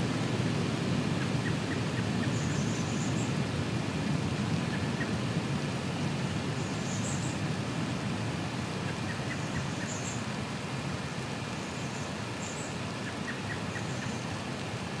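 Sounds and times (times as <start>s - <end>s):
low storm rumble: 0.0s - 13.0s
rain hiss: 0.0s - 15.0s
small bird chirps: 8.9s - 10.2s, 11.6s - 14.2s.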